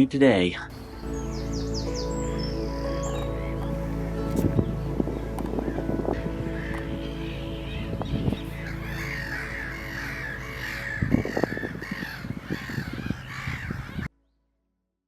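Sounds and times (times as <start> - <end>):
background music: 0.0 - 14.1
harsh caw-like bird calls: 6.4 - 7.8, 8.4 - 14.1.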